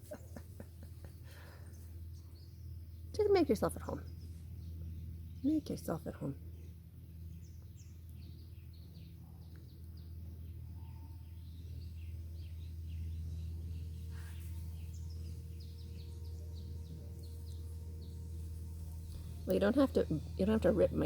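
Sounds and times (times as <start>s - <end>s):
birds chirping: 0.0s - 21.0s
low background rumble: 0.0s - 21.0s.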